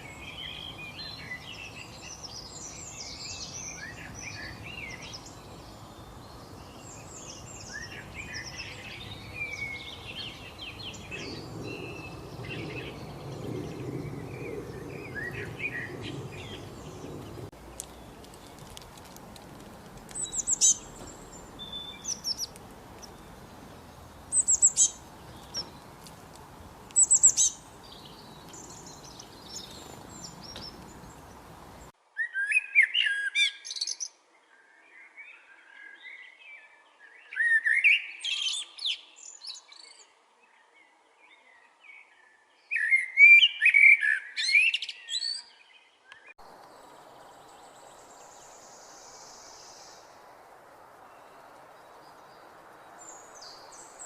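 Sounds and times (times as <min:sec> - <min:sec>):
background hiss: 0:00.0 - 0:32.0, 0:46.4 - 0:54.0
high-pitched bird chirps: 0:24.3 - 0:25.7, 0:27.0 - 0:27.6.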